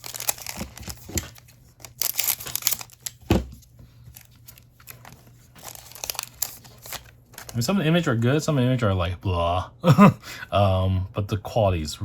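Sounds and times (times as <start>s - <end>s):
foil pack tearing and crinkling: 0.0s - 3.4s, 4.1s - 7.7s.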